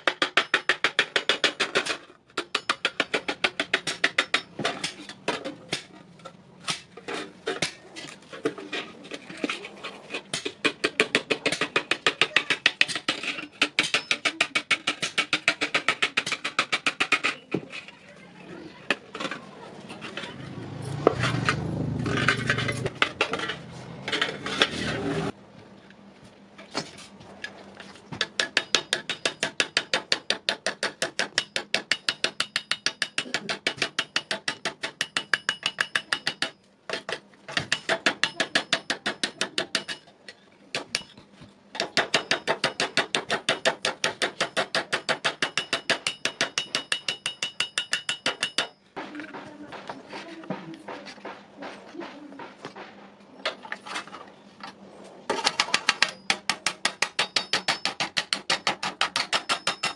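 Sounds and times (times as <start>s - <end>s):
hammer striking iron on anvil: 2.4s - 5.0s, 28.2s - 36.6s, 41.8s - 49.9s, 55.6s - 59.9s
loud rushing noise: 20.4s - 23.0s.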